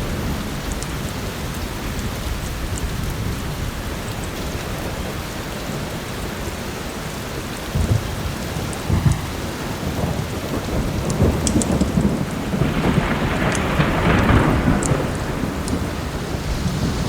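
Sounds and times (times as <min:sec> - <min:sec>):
heavy rain: 0:00.0 - 0:17.0
thunder rumbling: 0:00.0 - 0:17.0
log fire crackling: 0:06.0 - 0:17.0.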